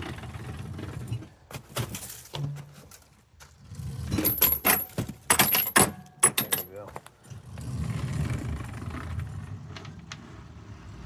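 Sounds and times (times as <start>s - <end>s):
knocks and clunks: 4.1s - 7.2s.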